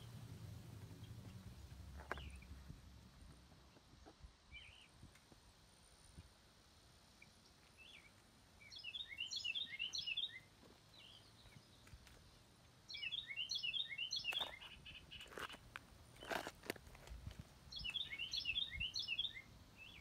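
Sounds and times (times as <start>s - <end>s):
small bird chirping: 0.8s - 2.7s, 3.6s - 5.1s, 7.1s - 16.6s, 17.7s - 20.0s.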